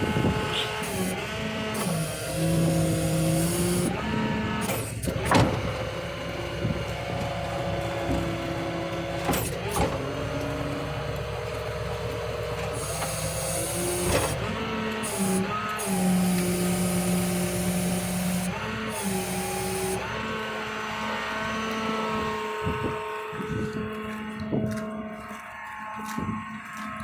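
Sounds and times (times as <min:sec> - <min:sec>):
truck engine running: 0:00.0 - 0:27.0
sharp clunks: 0:04.6 - 0:06.0.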